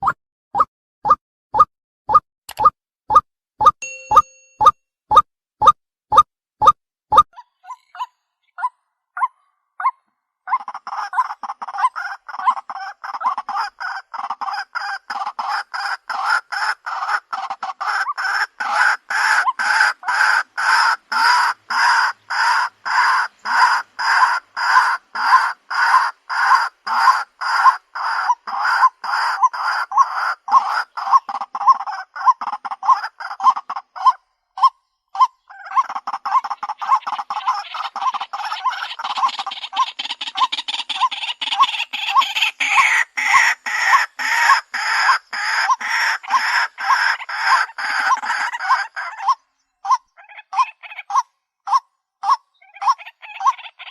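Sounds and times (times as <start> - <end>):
bird calling harsh notes: 33.2 - 53.9.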